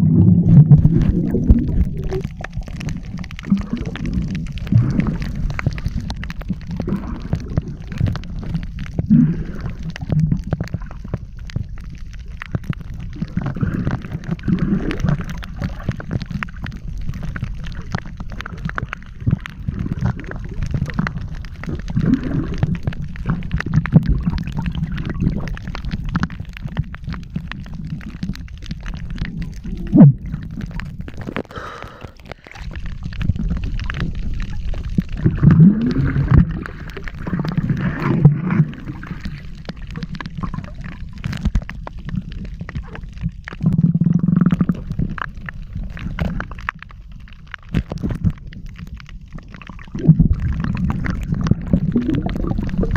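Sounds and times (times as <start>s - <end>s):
bubbly pitch sweeps: 0.0s - 5.4s, 49.6s - 52.9s
underwater rumbling and gurgling bubbles: 0.0s - 52.9s
small underwater clicks: 0.4s - 52.9s.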